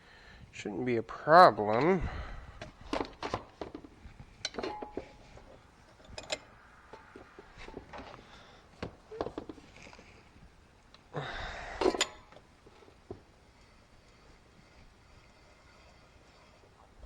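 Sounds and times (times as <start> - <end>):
metal tools clinking: 1.4 - 10.2, 11.7 - 16.8
metal ringing: 4.4 - 9.8, 11.7 - 12.9.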